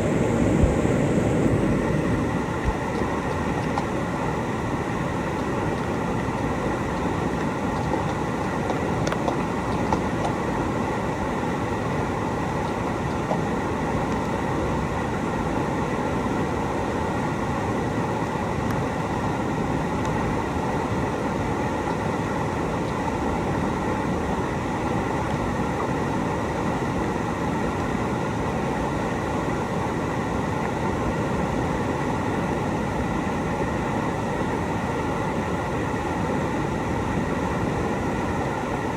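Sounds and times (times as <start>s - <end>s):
whitewater rushing in river: 0.0s - 27.8s.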